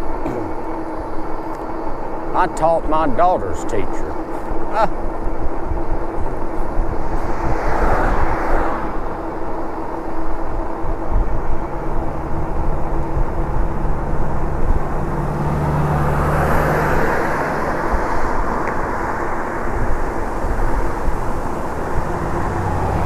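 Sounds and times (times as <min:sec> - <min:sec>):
steady hum: 0:00.0 - 0:23.0
wind rushing over microphone: 0:04.3 - 0:15.4, 0:16.2 - 0:23.0
vehicle passing: 0:05.4 - 0:23.0.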